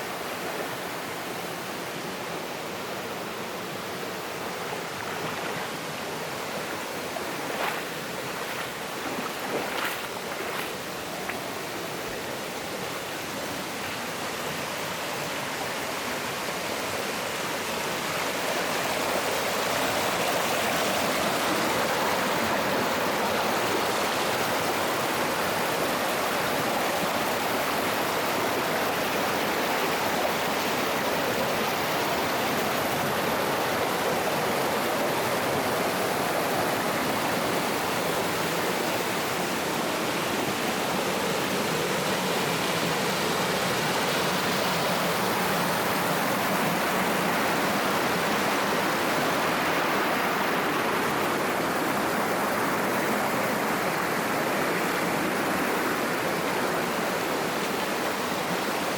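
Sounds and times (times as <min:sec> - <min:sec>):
stream flowing over rocks: 0:00.0 - 0:58.9.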